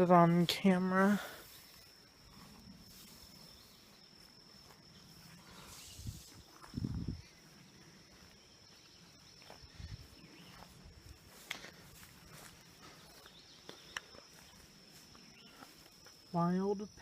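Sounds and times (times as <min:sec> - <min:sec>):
high-pitched insect hum: 0:00.0 - 0:17.0.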